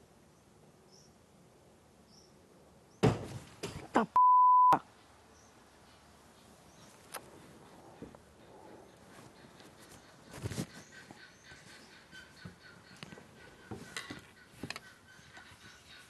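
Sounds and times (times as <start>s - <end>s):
censor bleep: 4.2s - 4.8s.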